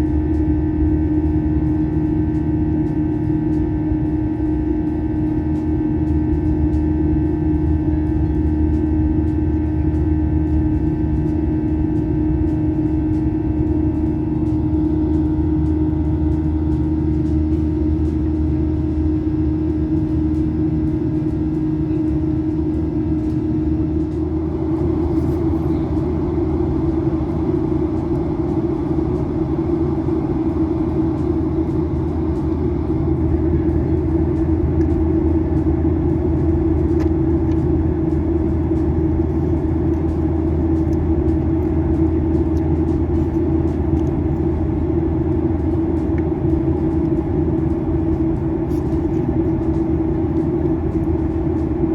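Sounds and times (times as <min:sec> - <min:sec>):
airliner cabin engine drone: 0:00.0 - 0:51.9.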